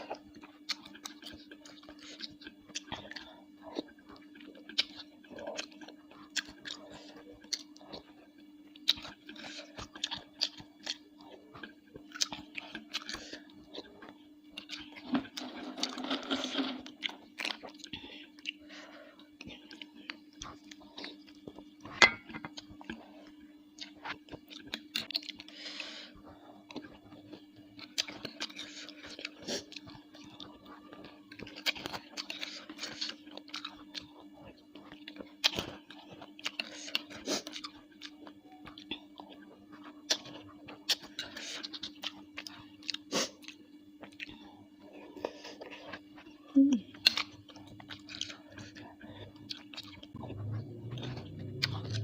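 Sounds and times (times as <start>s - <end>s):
chewing and mouth sounds: 0.0s - 15.5s, 16.4s - 52.0s
low hum: 45.8s - 52.0s
sharp chewing clicks: 50.9s - 52.0s.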